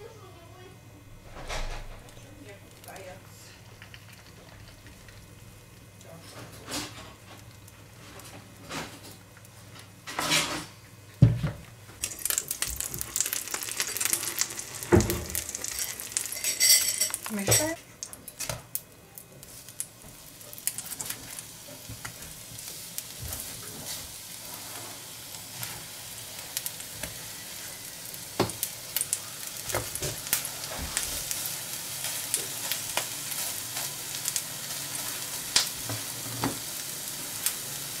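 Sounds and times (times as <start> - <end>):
meat sizzling in a frying pan: 12.0 - 38.0
spatula scraping a pan: 23.4 - 25.9.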